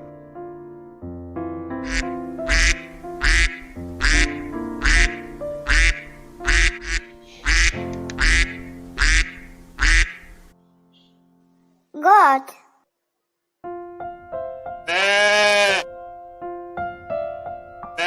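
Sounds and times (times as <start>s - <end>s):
background music: 0.0s - 12.6s
duck quacking: 1.9s - 10.4s.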